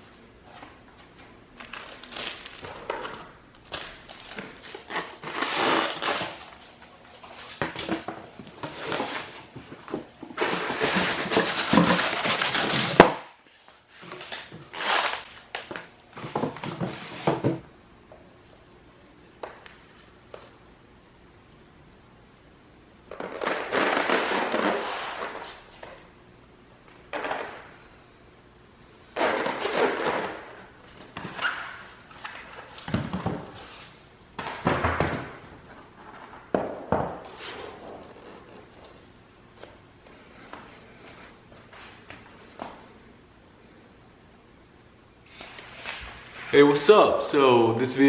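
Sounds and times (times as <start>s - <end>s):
packaging rustling and crinkling: 1.6s - 17.6s.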